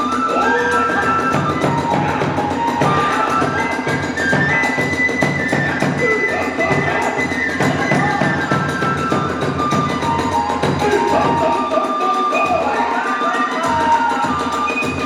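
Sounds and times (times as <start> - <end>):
bamboo flute playing high notes: 0.0 - 15.0
fast steady drum beat: 1.2 - 11.8.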